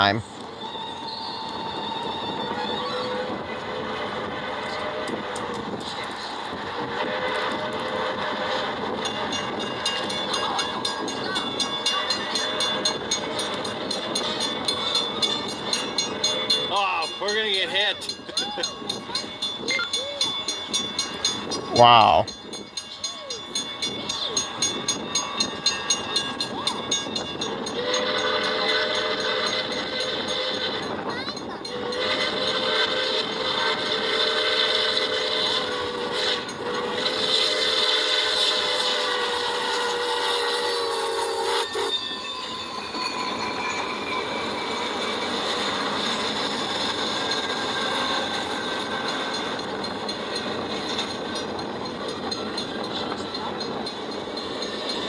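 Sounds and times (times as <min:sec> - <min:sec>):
train whistle: 0:00.0 - 0:17.4, 0:22.8 - 0:55.0
train cars rattling: 0:00.0 - 0:55.0
wheels squealing on rails: 0:00.0 - 0:55.0
train whistle chord: 0:31.6 - 0:50.0.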